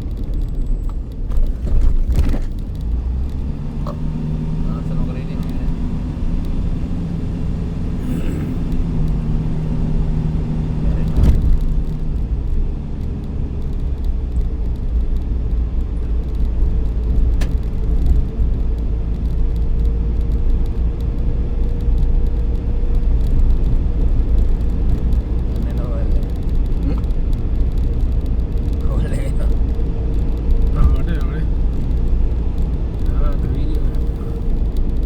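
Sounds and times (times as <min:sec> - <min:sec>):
engine hum: 0:00.0 - 0:35.0
vehicle rumble: 0:00.0 - 0:35.0
thump: 0:11.1 - 0:11.8.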